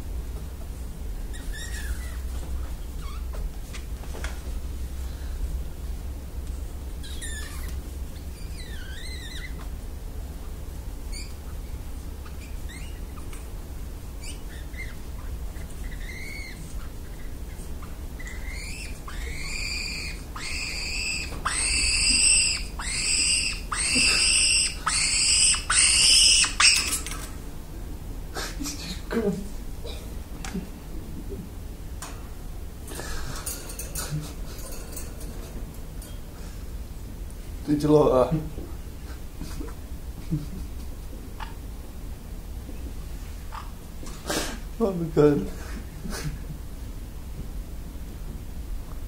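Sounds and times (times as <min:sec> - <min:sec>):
parrot repeated loud calls: 0:18.5 - 0:27.0.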